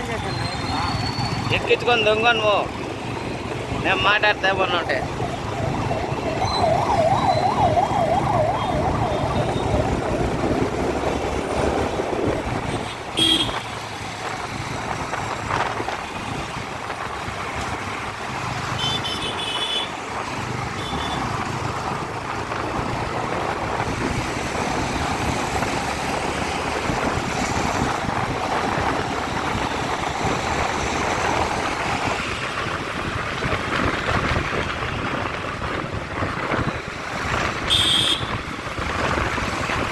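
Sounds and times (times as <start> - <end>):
emergency vehicle siren wailing: 0.0 - 11.4
road traffic noise: 0.0 - 39.9.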